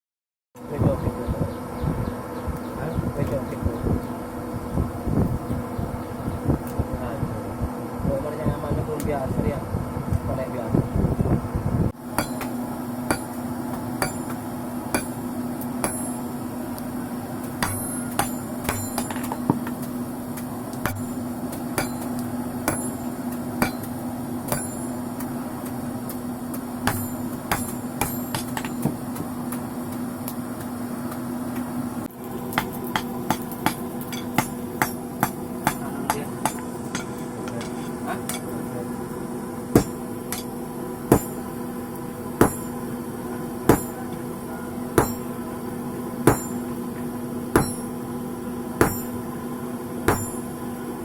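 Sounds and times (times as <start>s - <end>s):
hammer striking steel: 12.2s - 16.4s, 17.5s - 19.8s, 20.8s - 25.8s, 26.5s - 29.3s, 32.6s - 38.5s, 39.8s - 40.5s, 41.1s - 41.5s, 42.4s - 42.8s, 43.7s - 44.1s, 45.0s - 45.4s, 46.3s - 46.7s, 47.6s - 48.0s, 48.8s - 49.2s, 50.1s - 50.6s.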